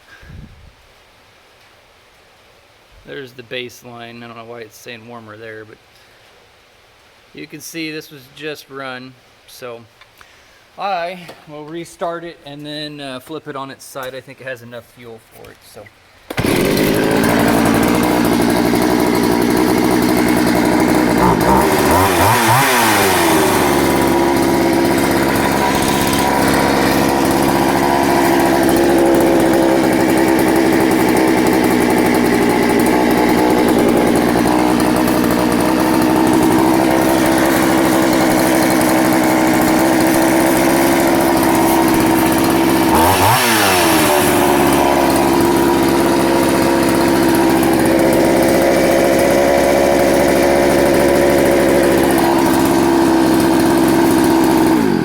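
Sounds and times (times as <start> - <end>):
chainsaw engine idling: 16.3 - 55.0.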